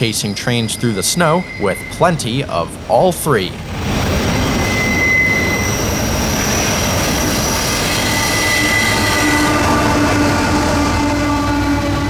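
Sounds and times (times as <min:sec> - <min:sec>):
low steady tone with overtones: 0:00.0 - 0:03.8
rumble of train cars: 0:00.0 - 0:12.0
train wheels squealing: 0:00.0 - 0:12.0.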